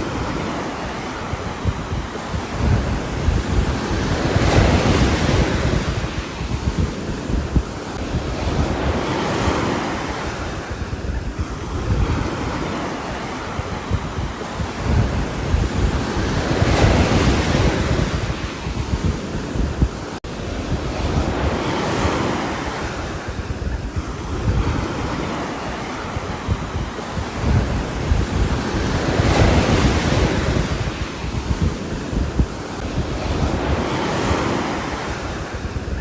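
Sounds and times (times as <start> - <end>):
rain with gusting wind: 0.0 - 36.0
wind rumble on microphone: 0.0 - 36.0.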